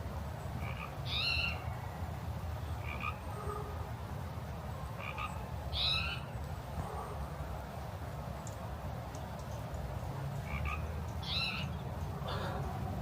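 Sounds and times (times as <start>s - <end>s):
frogs croaking: 0.6s - 1.6s, 2.8s - 3.3s, 5.0s - 5.9s, 10.4s - 11.4s.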